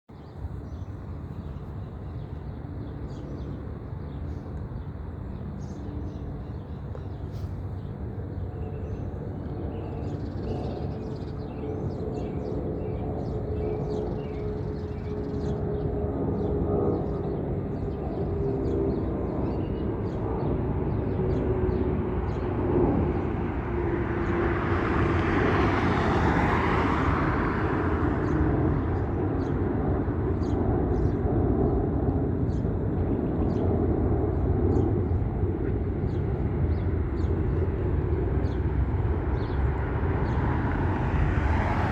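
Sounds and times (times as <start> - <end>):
jet rumble: 25.8 - 41.9
jet engine whine dropping in pitch: 33.9 - 41.9.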